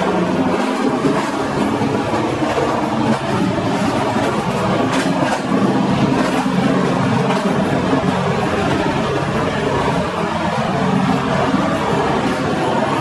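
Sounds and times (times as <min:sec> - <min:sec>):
clacks over rail joints: 0:00.0 - 0:13.0
train wheels rumbling on rails: 0:00.0 - 0:13.0.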